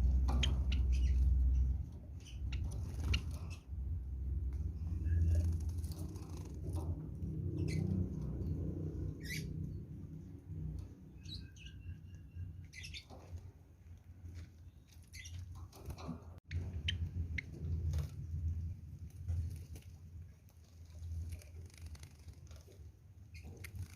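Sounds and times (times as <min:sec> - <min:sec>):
birds chirping: 0:00.0 - 0:13.5, 0:14.2 - 0:17.8
steady low rumble: 0:00.0 - 0:14.1, 0:16.4 - 0:21.6.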